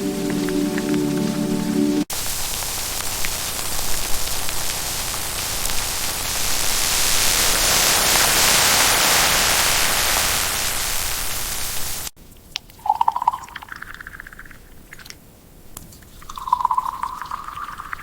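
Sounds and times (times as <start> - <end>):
heavy rain hissing: 0.0 - 12.2.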